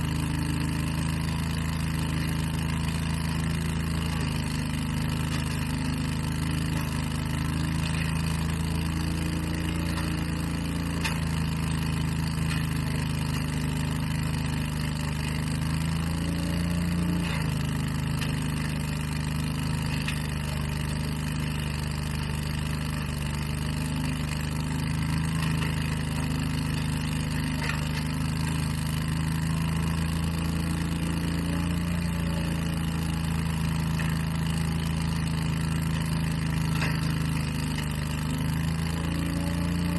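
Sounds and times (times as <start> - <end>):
lawn equipment engine running: 0.0 - 39.9.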